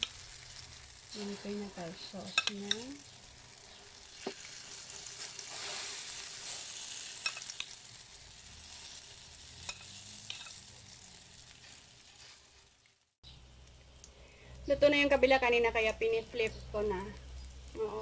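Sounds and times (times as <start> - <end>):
omelette sizzling in a frying pan: 0.0 - 18.0
metal spoon clicking on pan: 2.3 - 2.9, 9.7 - 10.6.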